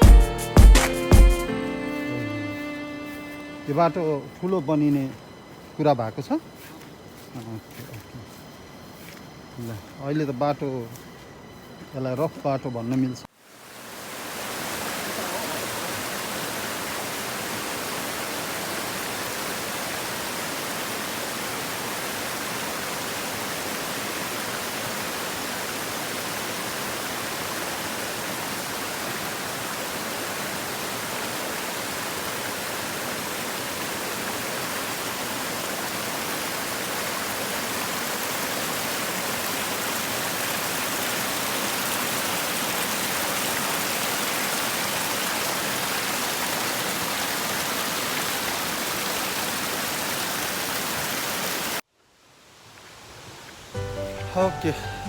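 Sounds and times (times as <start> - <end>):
rushing water: 13.2 - 55.0.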